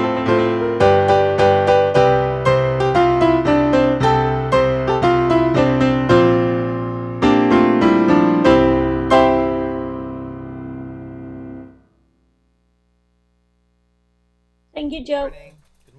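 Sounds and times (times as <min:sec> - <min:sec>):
solo piano music: 0:00.0 - 0:11.9.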